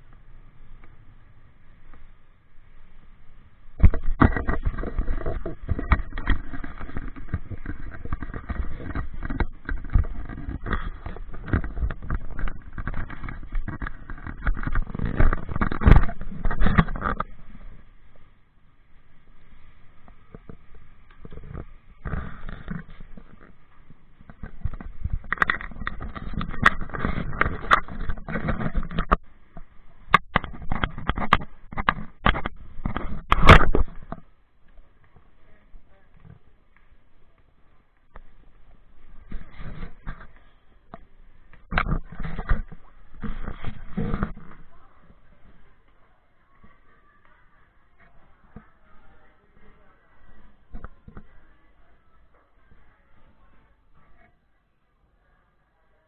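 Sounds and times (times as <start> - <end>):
crackling knocks: 3.7 - 17.8, 20.0 - 35.4, 36.1 - 46.0.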